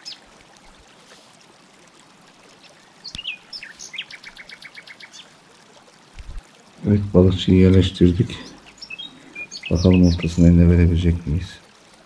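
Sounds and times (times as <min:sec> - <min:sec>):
bird chirping: 0:07.3 - 0:10.5.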